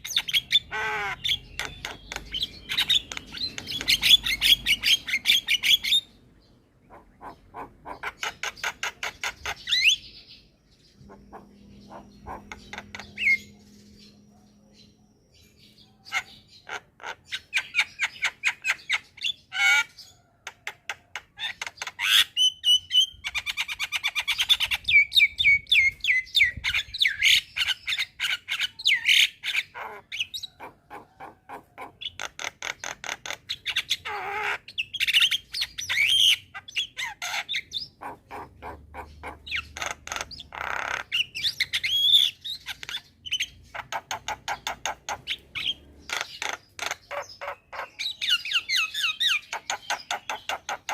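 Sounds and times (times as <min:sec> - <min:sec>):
bird squawks: 0:00.0 - 0:06.1, 0:06.8 - 0:10.1, 0:11.0 - 0:13.6, 0:15.9 - 0:20.1, 0:26.6 - 0:50.9
bird singing rattling chatter: 0:00.0 - 0:50.9.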